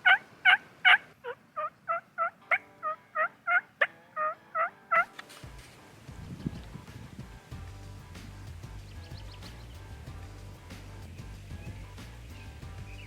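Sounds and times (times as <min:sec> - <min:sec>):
turkey yelping: 0:00.0 - 0:05.3
low rumbling noise: 0:05.5 - 0:13.0.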